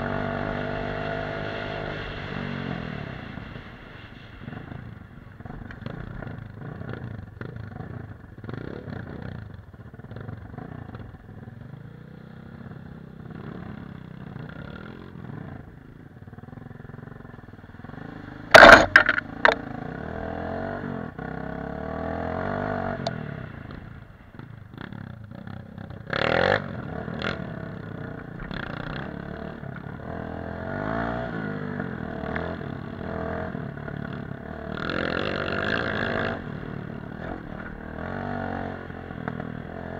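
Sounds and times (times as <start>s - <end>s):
dirt bike engine revving: 17.8s - 23.0s, 26.1s - 27.7s, 28.5s - 39.9s
loud sudden bump: 18.5s - 19.6s.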